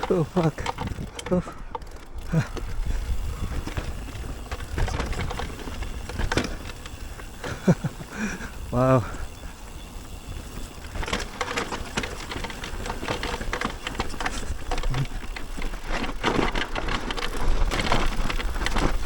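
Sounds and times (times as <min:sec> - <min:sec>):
bike rattling: 0:00.0 - 0:19.0
tyres crackling over stones: 0:00.0 - 0:19.0
wind rumble on microphone: 0:02.5 - 0:07.2.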